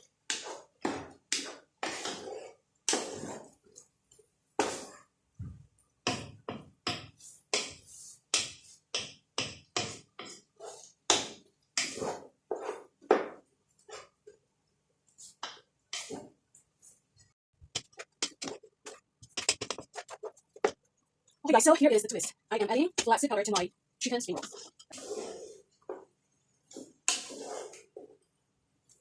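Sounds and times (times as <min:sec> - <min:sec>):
metal utensil scraping a pan: 0:00.3 - 0:03.8, 0:04.6 - 0:05.1, 0:09.4 - 0:13.0, 0:24.2 - 0:26.1, 0:26.7 - 0:28.1.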